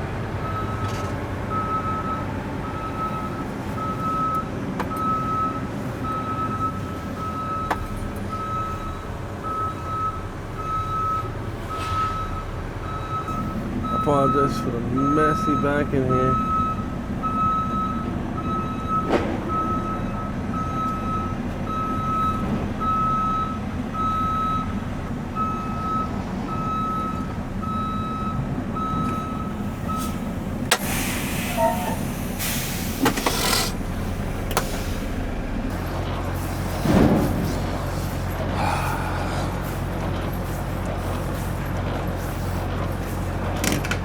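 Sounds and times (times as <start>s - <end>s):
diesel truck engine running: 0.0s - 44.0s
backup alarm beeping: 0.4s - 24.8s, 25.4s - 36.4s
air brakes hissing: 29.6s - 43.4s.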